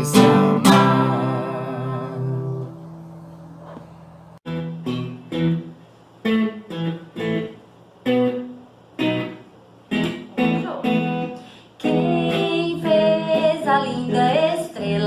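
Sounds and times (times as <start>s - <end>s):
guitar strumming chords: 0.0s - 11.3s.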